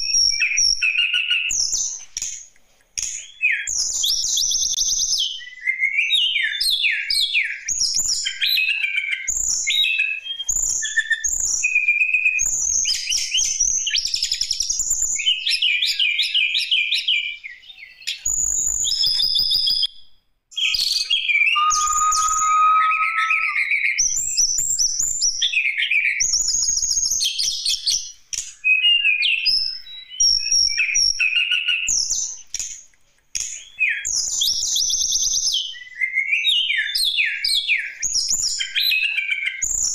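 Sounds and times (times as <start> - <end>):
bird singing fast song: 20.6 - 23.7
low steady whistled note: 21.5 - 23.8.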